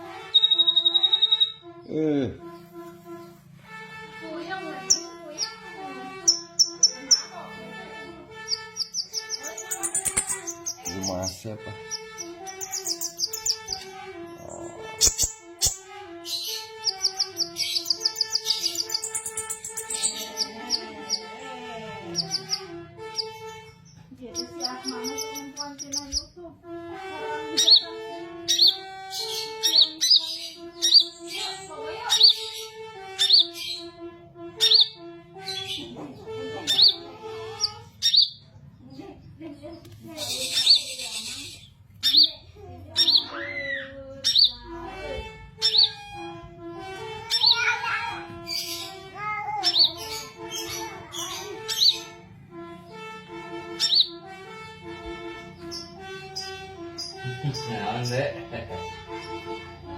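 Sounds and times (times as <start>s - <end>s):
bird twittering: 0.2s - 1.7s, 4.8s - 7.4s, 8.3s - 21.3s, 22.1s - 26.4s, 27.5s - 33.9s, 34.6s - 39.0s, 39.6s - 44.7s, 45.6s - 46.3s, 47.3s - 47.7s, 48.4s - 52.2s, 53.8s - 54.2s, 55.6s - 58.3s
slow background music: 1.4s - 26.3s, 27.0s - 37.0s, 44.3s - 47.6s, 48.4s - 59.9s
songbird sharp high chirp: 12.5s - 13.8s, 16.8s - 20.5s.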